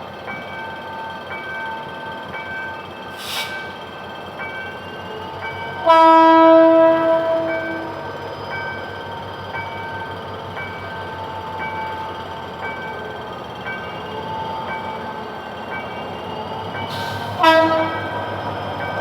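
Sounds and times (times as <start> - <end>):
brief hiss: 3.1 - 3.8
locomotive air horn blast: 5.8 - 8.0, 16.9 - 18.1.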